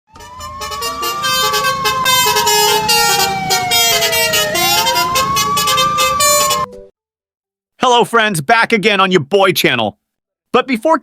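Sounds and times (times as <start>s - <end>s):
wailing siren: 0.1s - 6.9s.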